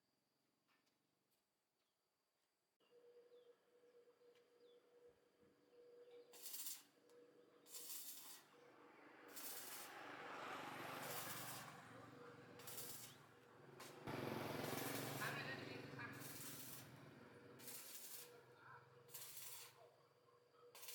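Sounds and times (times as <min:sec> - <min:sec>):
short hissing sprays: 0:07.7 - 0:08.5, 0:09.3 - 0:10.0, 0:11.0 - 0:11.8, 0:12.6 - 0:13.2, 0:13.8 - 0:17.0, 0:17.6 - 0:18.4, 0:19.2 - 0:19.8.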